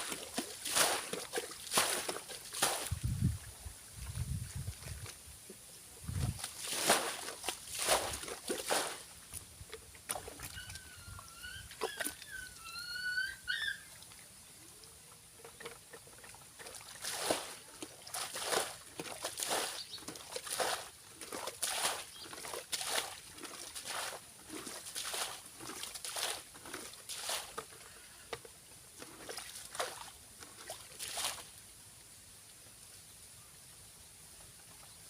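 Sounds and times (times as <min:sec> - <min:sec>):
shallow water splashing: 0:00.0 - 0:05.2, 0:06.1 - 0:12.5, 0:15.4 - 0:27.9, 0:29.0 - 0:31.5
chirping calls: 0:10.5 - 0:14.0.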